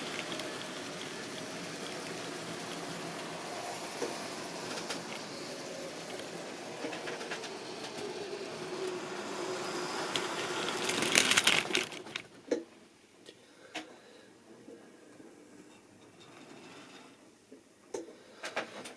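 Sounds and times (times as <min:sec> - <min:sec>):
model train motor hum: 0:00.0 - 0:12.2
model train wheels clattering: 0:00.0 - 0:12.6.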